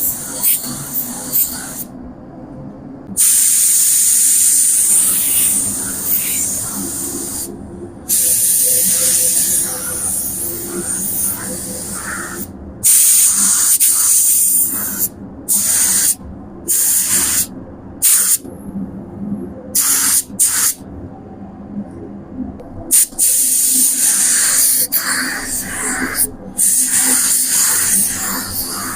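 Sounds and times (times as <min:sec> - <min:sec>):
paint spray gun hissing: 0:08.1 - 0:18.4, 0:19.8 - 0:20.8, 0:22.9 - 0:28.9.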